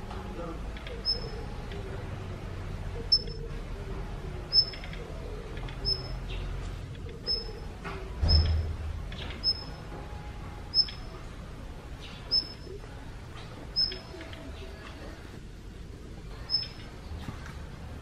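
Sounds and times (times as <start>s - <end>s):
bird high whistled call: 12.3s - 12.6s, 16.5s - 16.8s.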